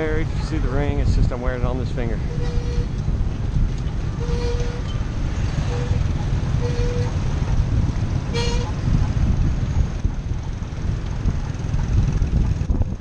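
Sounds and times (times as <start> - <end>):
road traffic rumble: 0.0 - 13.0
vehicle horn toots: 2.3 - 2.9, 4.2 - 4.9, 5.6 - 7.2, 8.3 - 8.8.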